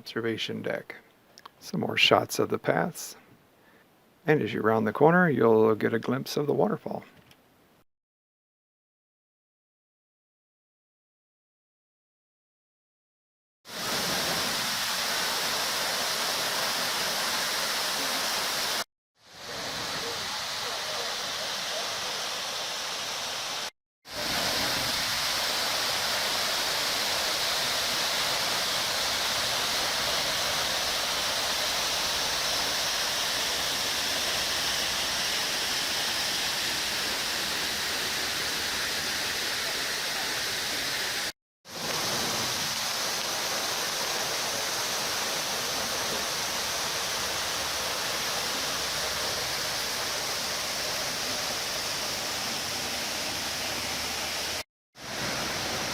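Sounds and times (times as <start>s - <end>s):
waterfall roaring: 13.8s - 18.8s, 19.4s - 55.9s.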